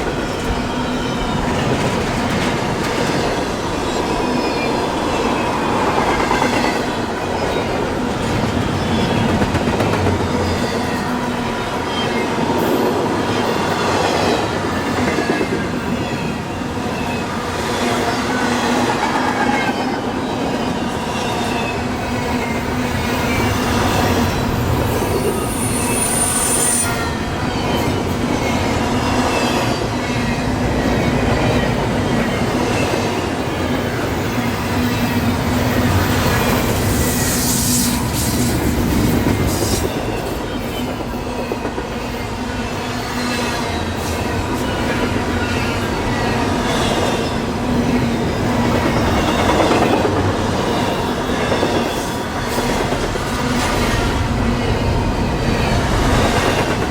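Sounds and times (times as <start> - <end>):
train wheels clattering over rails: 0.0 - 25.6, 27.2 - 56.9
high-pitched squeal: 23.2 - 28.6
wheel squeal: 24.8 - 28.0.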